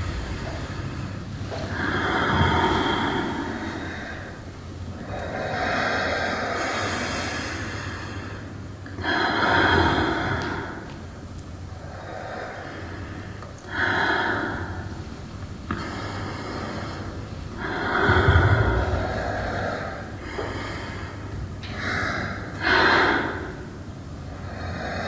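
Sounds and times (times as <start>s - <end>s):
person breathing and gasping: 15.8s - 23.6s.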